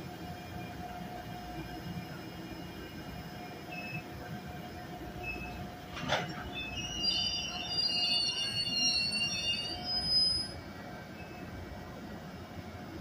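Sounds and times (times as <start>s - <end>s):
train rolling on track: 0.0s - 13.0s
faint wheel squeals: 6.4s - 10.6s.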